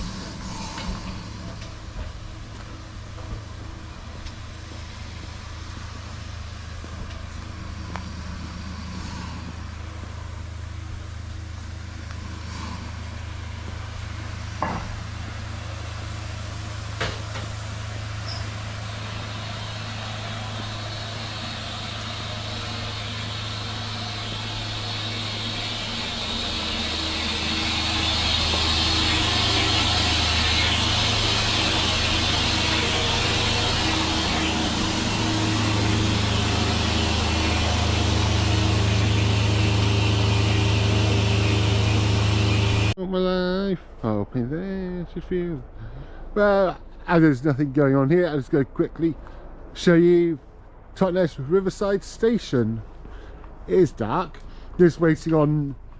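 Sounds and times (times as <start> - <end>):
hiss: 0.0 - 43.0
engine humming: 0.0 - 55.9.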